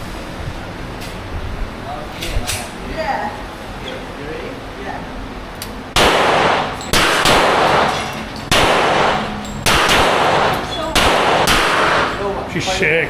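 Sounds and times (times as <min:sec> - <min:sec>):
gunshots: 0:06.0 - 0:12.3.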